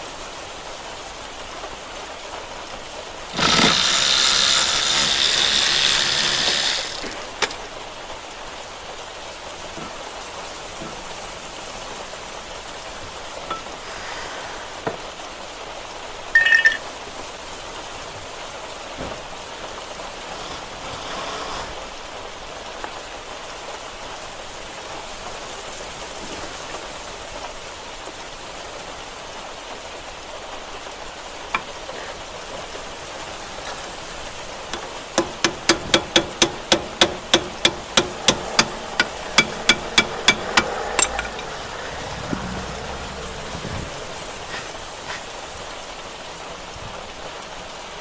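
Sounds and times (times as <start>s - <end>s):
rain hissing: 0.0s - 48.0s
hammer blows on metal: 34.7s - 43.0s.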